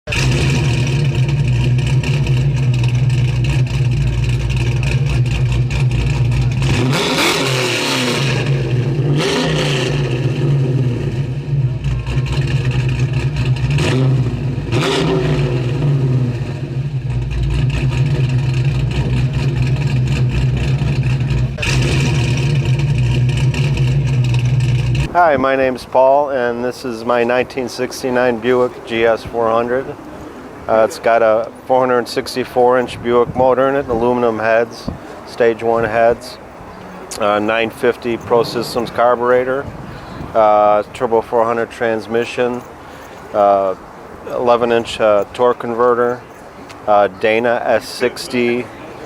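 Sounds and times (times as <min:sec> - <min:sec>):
engine revving: 0:00.0 - 0:25.2, 0:33.3 - 0:40.6
car engine idling loudly: 0:00.1 - 0:25.1.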